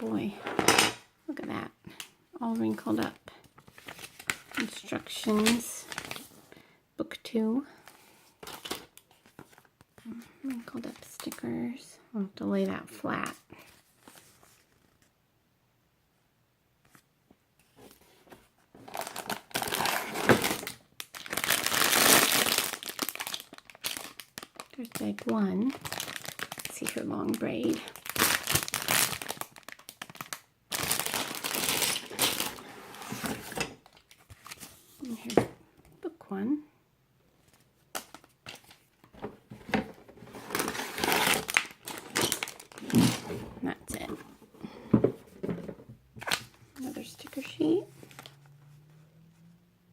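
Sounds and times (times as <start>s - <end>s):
plastic bag crinkling: 3.6s - 6.4s, 18.8s - 34.6s, 40.0s - 44.3s, 46.2s - 48.4s.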